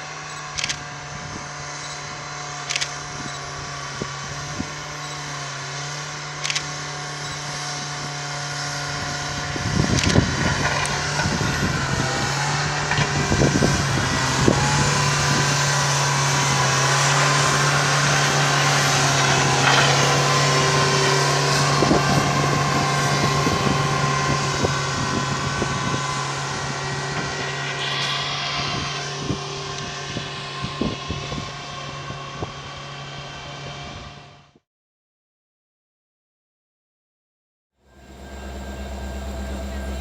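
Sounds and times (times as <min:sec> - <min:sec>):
train engine drone: 0:00.0 - 0:34.5, 0:37.8 - 0:40.0
metallic ringing: 0:37.9 - 0:40.0.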